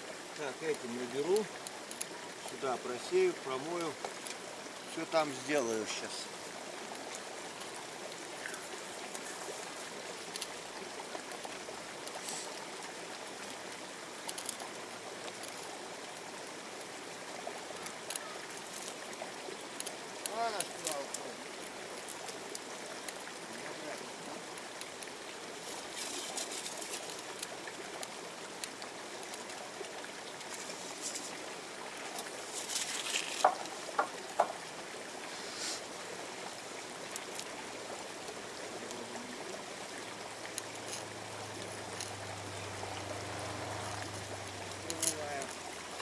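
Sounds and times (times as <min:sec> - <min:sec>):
river water running: 0:00.0 - 0:46.0
stones and gravel clicking: 0:32.1 - 0:34.6.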